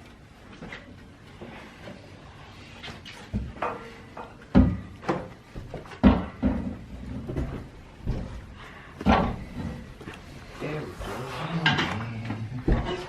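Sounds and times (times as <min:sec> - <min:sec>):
heavy item knocking and banging: 0:04.5 - 0:08.4, 0:09.0 - 0:09.9.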